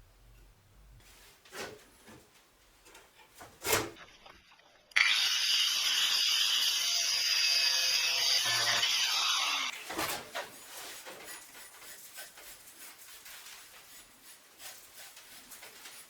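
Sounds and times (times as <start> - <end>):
angle grinder grinding metal: 5.0 - 9.8.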